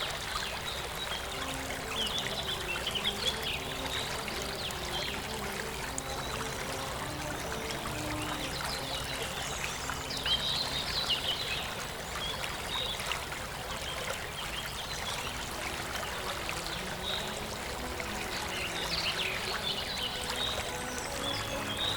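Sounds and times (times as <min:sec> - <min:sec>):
water flowing: 0:00.0 - 0:21.9.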